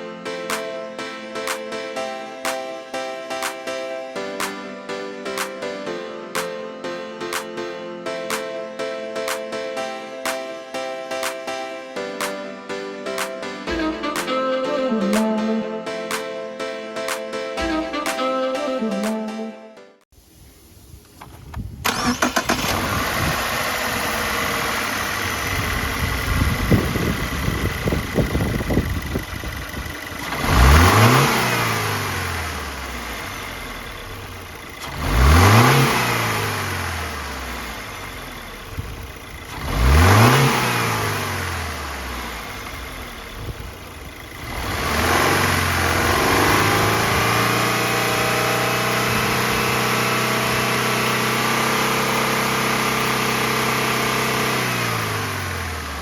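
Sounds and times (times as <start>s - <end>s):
car engine idling and revving: 21.8s - 56.0s.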